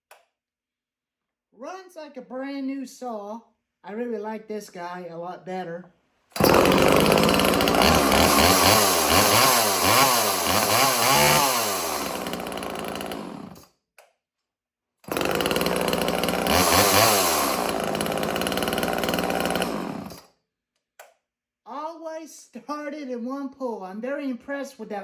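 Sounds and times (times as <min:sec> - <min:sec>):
chainsaw engine revving: 0:06.4 - 0:13.6, 0:15.1 - 0:20.2.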